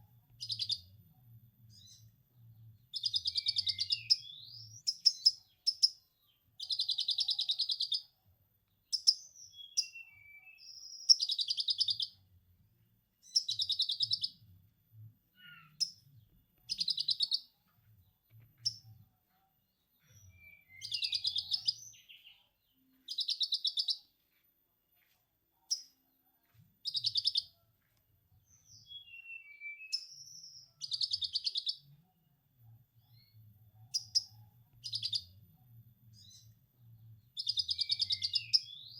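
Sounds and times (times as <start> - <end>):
songbird chattering: 20.7 - 22.2.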